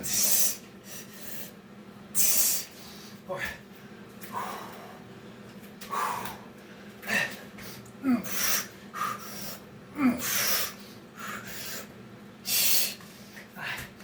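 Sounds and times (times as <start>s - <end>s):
man breathing hard: 4.2s - 5.2s, 5.8s - 14.0s
man grunting: 8.0s - 8.4s, 9.9s - 10.3s.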